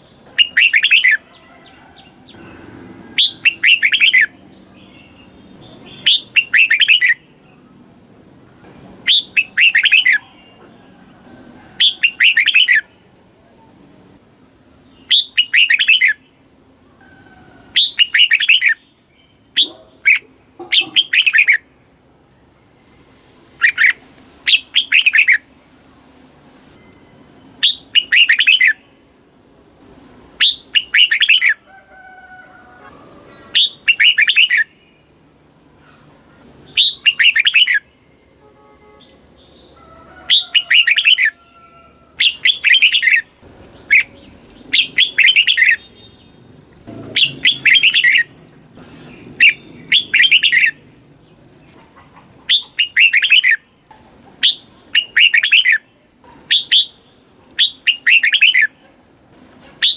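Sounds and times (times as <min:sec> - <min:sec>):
bird warbling song: 0:00.0 - 0:01.4, 0:02.0 - 0:10.8, 0:11.8 - 0:13.0, 0:14.8 - 0:16.3, 0:17.7 - 0:21.7, 0:23.6 - 0:25.5, 0:26.8 - 0:28.9, 0:30.4 - 0:31.8, 0:33.3 - 0:38.0, 0:39.0 - 0:41.4, 0:42.0 - 0:53.7, 0:54.4 - 0:58.9
soft bird calls: 0:00.0 - 0:13.7, 0:14.3 - 0:21.7, 0:30.4 - 0:32.0, 0:32.7 - 0:59.9.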